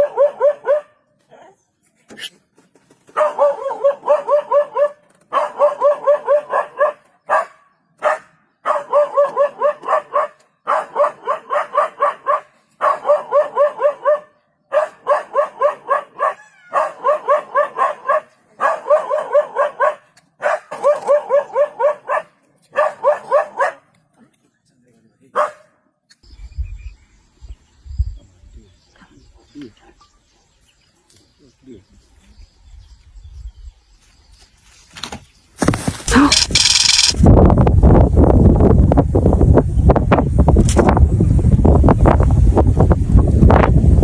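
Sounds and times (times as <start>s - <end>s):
dog yapping: 0.0s - 0.9s, 3.2s - 23.8s.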